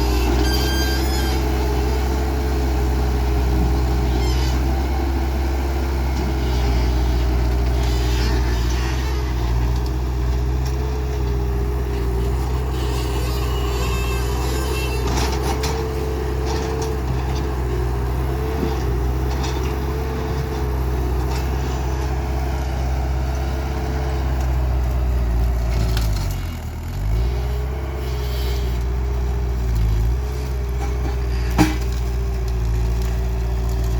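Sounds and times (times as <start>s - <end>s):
loader engine running: 0.0s - 33.9s.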